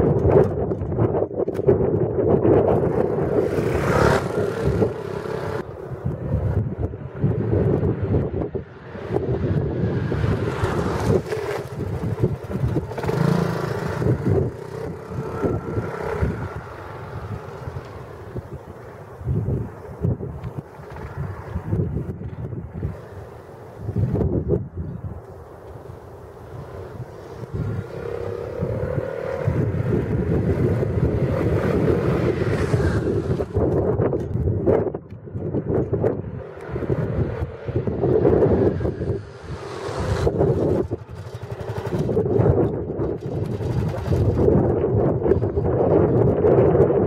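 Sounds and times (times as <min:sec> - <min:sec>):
wind buffeting microphone: 0:00.0 - 0:47.0
scooter engine running: 0:02.6 - 0:07.6, 0:09.3 - 0:22.0, 0:26.4 - 0:34.6, 0:36.3 - 0:45.9.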